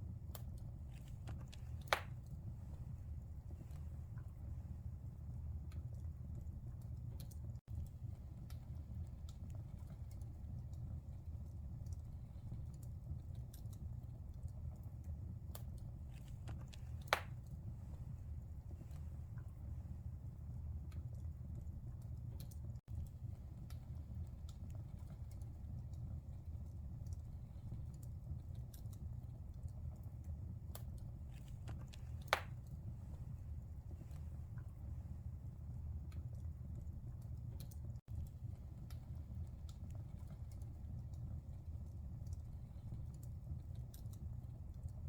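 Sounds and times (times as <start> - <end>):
wood fire crackling: 0.0 - 45.0
loud pop of burning wood: 1.3 - 2.2, 17.0 - 17.4, 32.2 - 32.6
loud pop of fire: 32.2 - 32.6.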